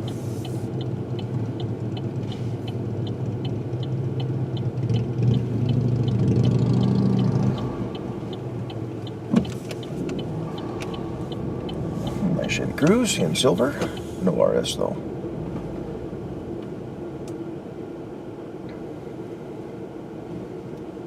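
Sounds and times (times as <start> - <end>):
turn signal clicking: 0.0 - 14.1
car engine from inside cabin: 0.0 - 21.0.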